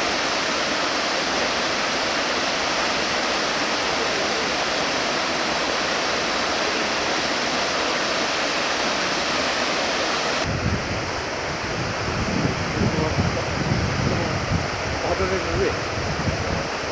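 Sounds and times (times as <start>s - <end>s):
waterfall rushing: 0.0s - 16.9s
wind buffeting microphone: 10.4s - 16.9s.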